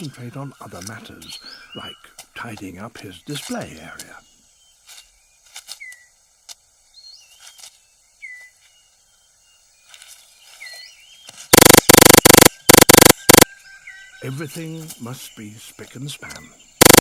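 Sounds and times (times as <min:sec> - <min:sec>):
loud distorted buzzing effect: 0:11.6 - 0:13.4.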